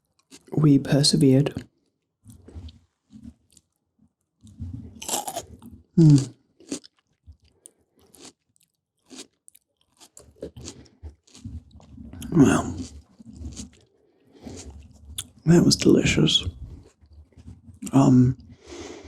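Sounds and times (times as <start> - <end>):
chewing crisp bell pepper: 0.0 - 0.6, 2.3 - 3.8, 4.4 - 18.4.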